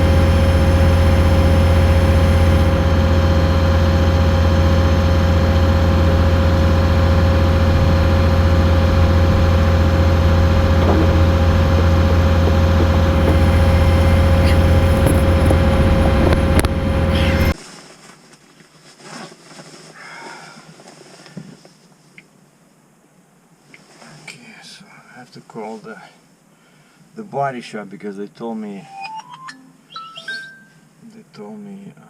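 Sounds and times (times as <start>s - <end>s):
diesel truck engine idling: 0.0s - 17.6s.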